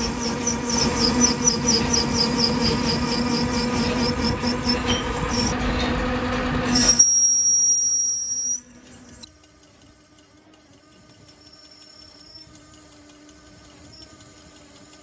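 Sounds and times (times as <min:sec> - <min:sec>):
thin high-pitched squeal: 0:00.0 - 0:05.6, 0:06.7 - 0:09.3
factory machinery humming: 0:00.0 - 0:09.3.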